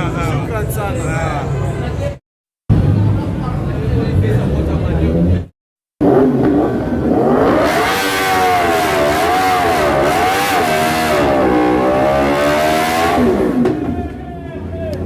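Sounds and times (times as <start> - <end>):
car engine revving: 2.7 - 13.9.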